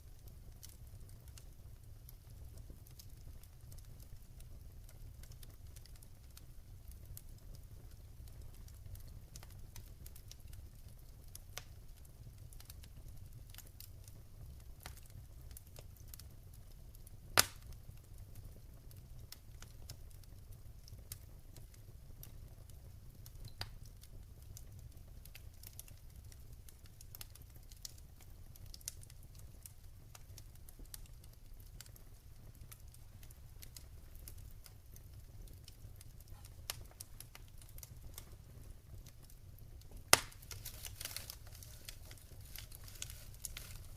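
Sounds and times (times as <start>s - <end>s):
wood fire crackling: 0.0s - 43.9s
sharp pops: 40.1s - 41.2s.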